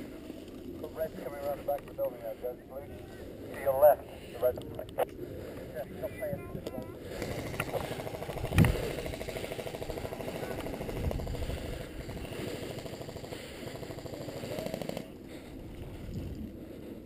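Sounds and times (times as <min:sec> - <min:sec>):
airsoft gun full-auto rattle: 0:07.1 - 0:15.2.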